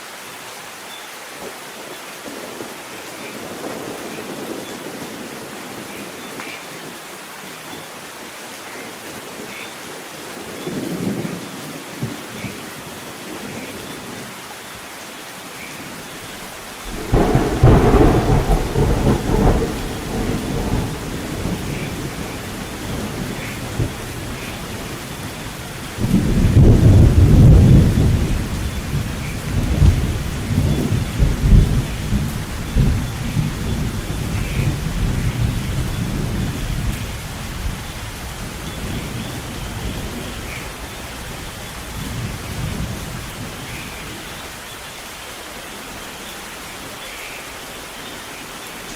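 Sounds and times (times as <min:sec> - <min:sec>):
steady rain: 0:00.0 - 0:48.9
thunder rumbling: 0:16.7 - 0:44.3.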